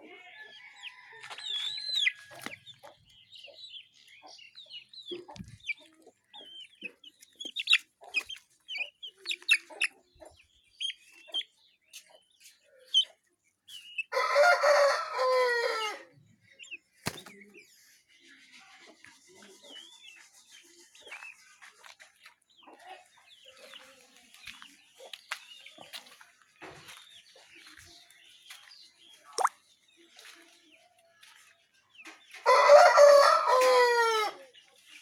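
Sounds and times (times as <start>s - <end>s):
chickens clucking and cheeping: 0.0s - 35.0s
rooster crowing: 14.2s - 16.0s, 32.5s - 34.4s.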